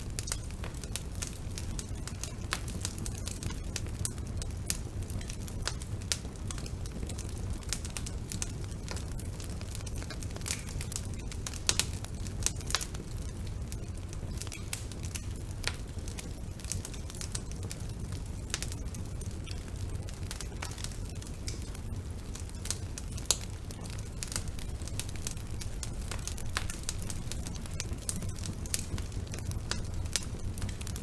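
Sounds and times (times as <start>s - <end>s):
logs crackling and popping: 0.0s - 31.0s
low rumble of flames: 0.0s - 31.0s.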